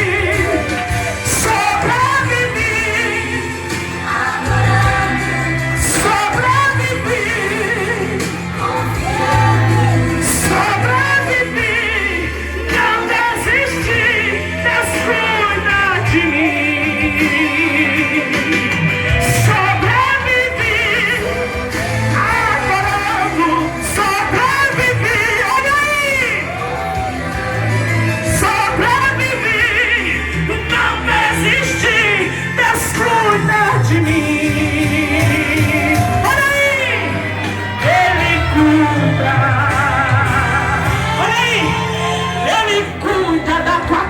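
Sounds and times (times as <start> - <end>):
band with bass and drums: 0.0 - 44.0
woman singing: 28.4 - 40.8.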